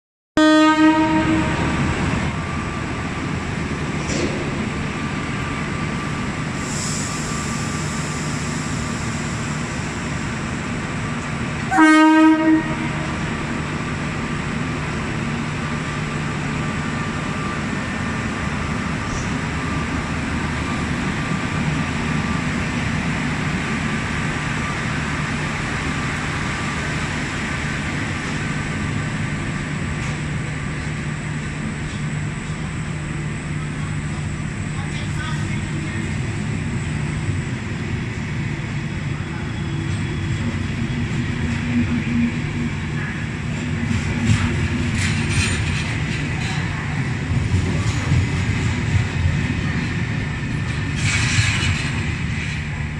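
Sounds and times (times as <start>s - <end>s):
locomotive horn blast: 0.4s - 1.8s, 11.7s - 13.3s
train rolling slowly: 0.4s - 52.9s.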